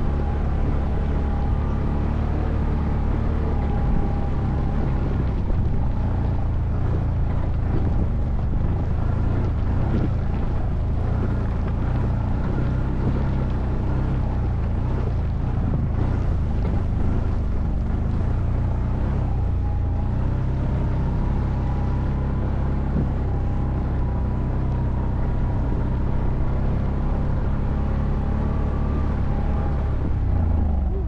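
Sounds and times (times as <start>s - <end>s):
atv engine running: 0.0s - 31.0s
wind noise on microphone: 0.0s - 31.0s.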